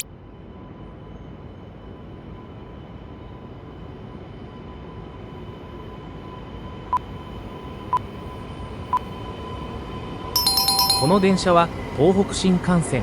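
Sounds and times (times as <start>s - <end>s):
train rumbling: 6.0s - 13.0s
short high beeps: 10.4s - 11.3s.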